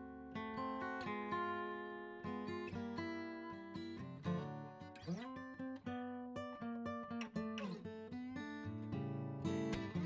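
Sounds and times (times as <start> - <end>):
acoustic guitar plucking: 0.0 - 10.0.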